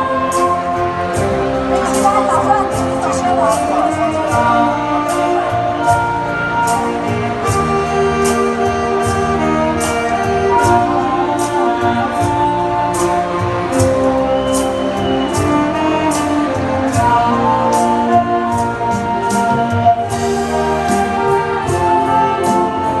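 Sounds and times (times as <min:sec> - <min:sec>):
saxophone ensemble playing: 0:00.0 - 0:23.0
steady percussion beat: 0:00.0 - 0:23.0.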